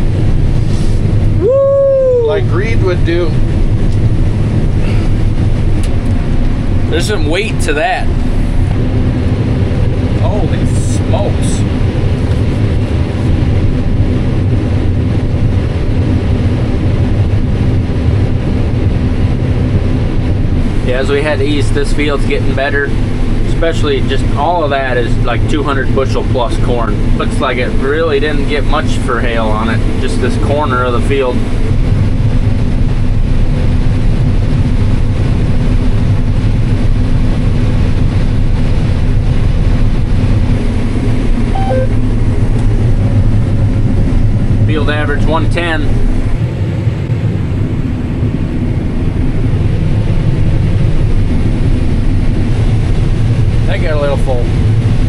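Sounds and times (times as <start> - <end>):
combine harvester drone: 0.0 - 55.0
two-note electronic beep: 41.5 - 42.0.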